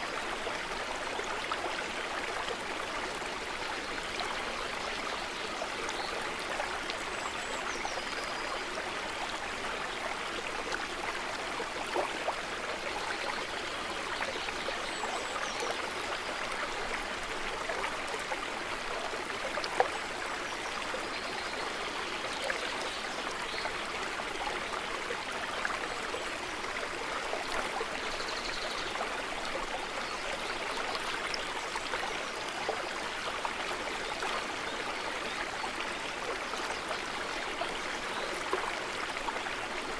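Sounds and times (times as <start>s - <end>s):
stream water rushing: 16.0s - 21.0s.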